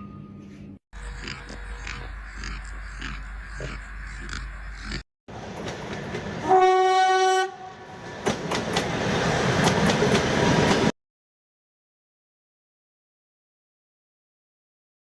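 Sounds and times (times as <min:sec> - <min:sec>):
train horn: 0:06.4 - 0:08.0
train wheels clacking on rails: 0:08.0 - 0:10.9.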